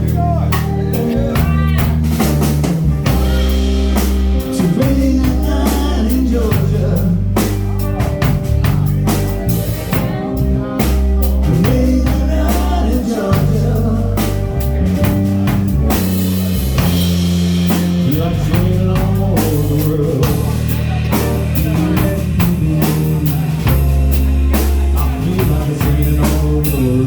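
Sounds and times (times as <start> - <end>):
band playing blues ballad: 0.0 - 27.0
bass notes: 0.0 - 27.0
drum kit beat: 0.0 - 27.0
person singing: 3.0 - 15.0, 17.7 - 27.0.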